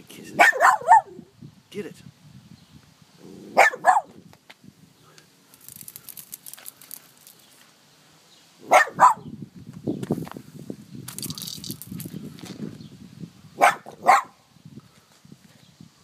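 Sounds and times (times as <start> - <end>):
dog barking: 0.4 - 1.2, 3.5 - 4.2, 8.6 - 9.2, 13.6 - 14.4.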